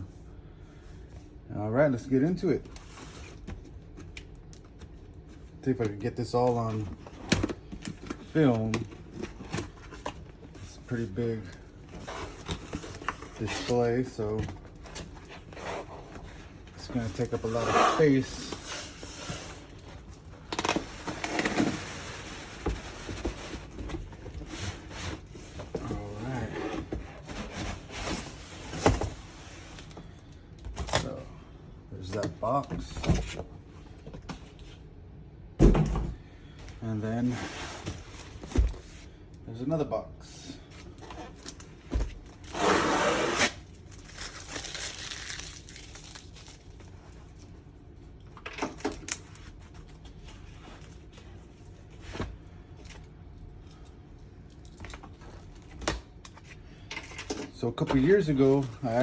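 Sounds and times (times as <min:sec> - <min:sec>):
cardboard rubbing and scraping: 0:42.4 - 0:43.6.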